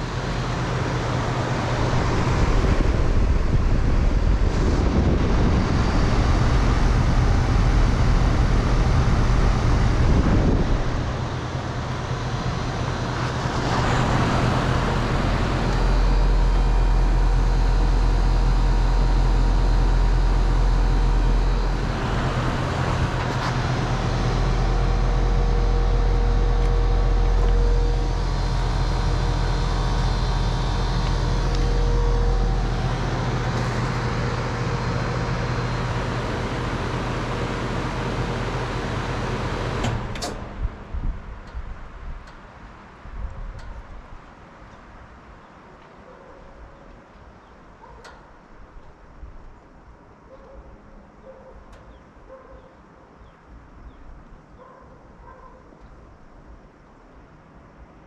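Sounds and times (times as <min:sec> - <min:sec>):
compressor hum: 0:00.0 - 0:45.4
condenser fan rushing air: 0:00.0 - 0:45.8.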